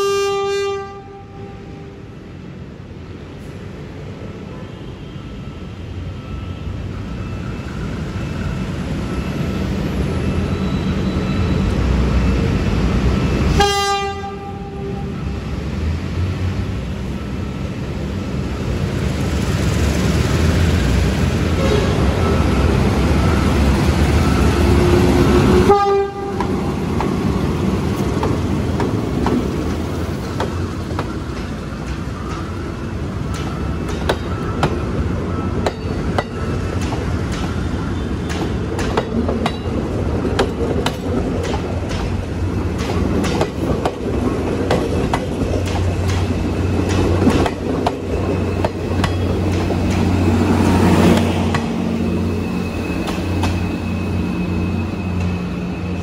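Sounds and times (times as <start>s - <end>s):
locomotive low drone: 14.2s - 56.0s.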